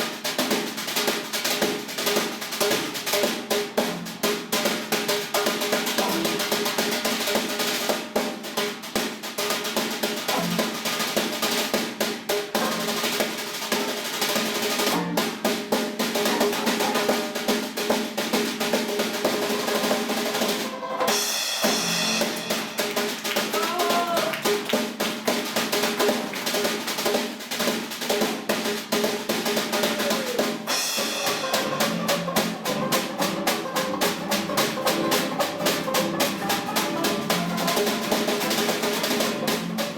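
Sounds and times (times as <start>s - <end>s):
snare drum strokes and rolls: 0.0s - 39.9s
bass drum: 21.6s - 26.8s, 29.7s - 39.9s
background music: 31.0s - 39.9s.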